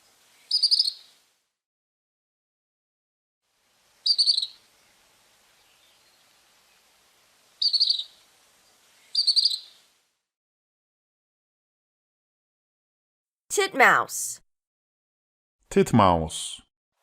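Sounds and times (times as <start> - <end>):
bird twittering calls: 0.3 - 1.1, 4.0 - 4.7, 7.6 - 9.8.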